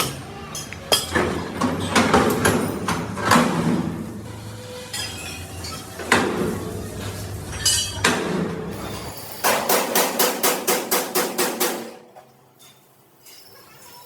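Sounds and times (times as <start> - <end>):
hammer striking steel: 9.4 - 12.0.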